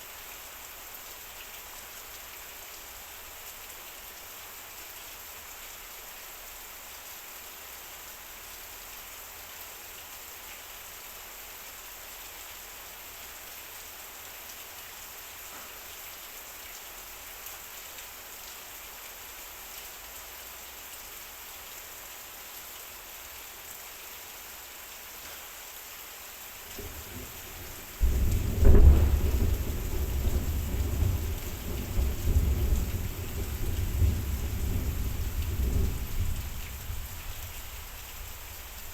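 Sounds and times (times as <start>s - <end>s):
heavy rain on a metal roof: 0.0s - 38.9s
deep rumble of thunder: 26.7s - 38.9s.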